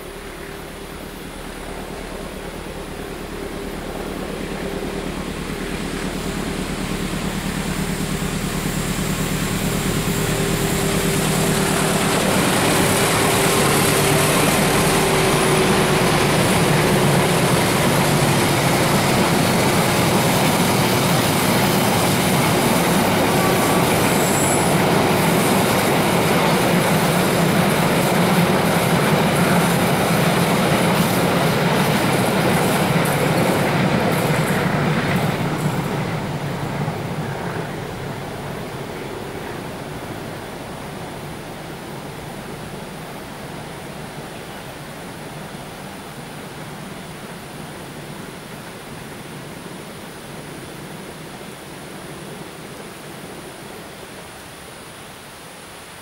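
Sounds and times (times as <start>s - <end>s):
train wheels rushing on rails: 0.0s - 56.0s
high wheel squeals: 22.9s - 25.7s.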